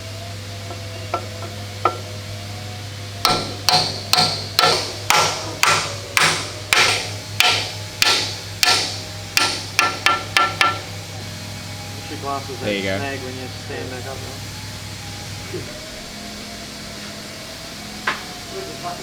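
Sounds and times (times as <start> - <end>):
hammer striking steel: 3.2 - 10.9.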